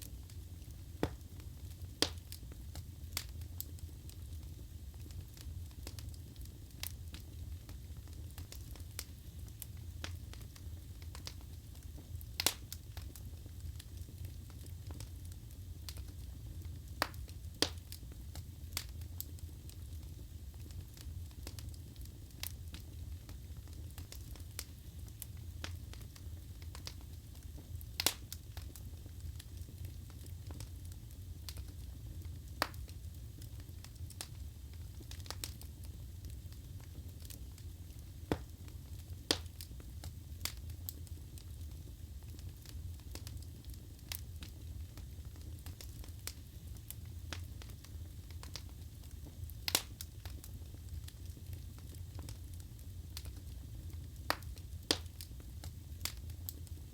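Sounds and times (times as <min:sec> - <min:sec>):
fire crackling in a fireplace: 0:00.0 - 0:56.9
burning wood popping: 0:00.6 - 0:04.4, 0:20.9 - 0:32.9, 0:36.6 - 0:41.5, 0:42.3 - 0:52.4, 0:54.2 - 0:55.4.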